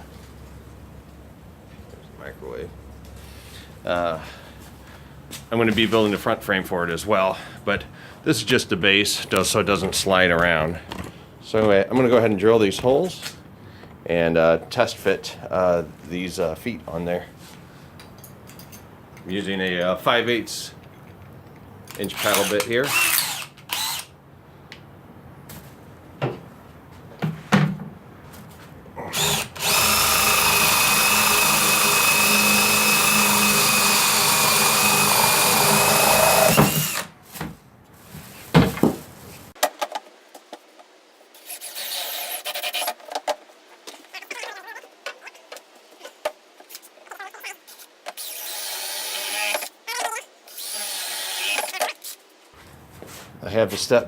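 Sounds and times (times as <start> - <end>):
power drill boring through wood: 22.2 - 24.1, 29.1 - 37.1, 41.4 - 43.0, 48.2 - 49.8, 50.5 - 51.9
handling noises: 36.6 - 41.0.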